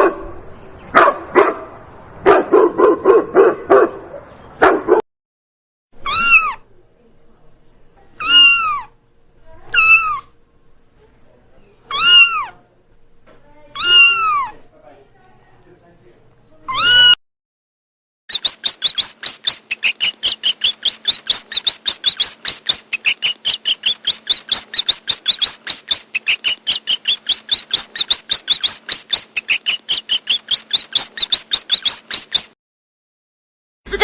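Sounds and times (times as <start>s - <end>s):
cat meowing: 6.0s - 6.6s, 8.2s - 8.9s, 9.7s - 10.3s, 11.9s - 12.6s, 13.8s - 14.6s, 16.7s - 17.2s
mouse squeaking: 6.0s - 6.6s, 8.2s - 8.9s, 9.7s - 10.3s, 11.9s - 12.6s, 13.8s - 14.6s, 16.7s - 17.2s, 18.3s - 32.6s.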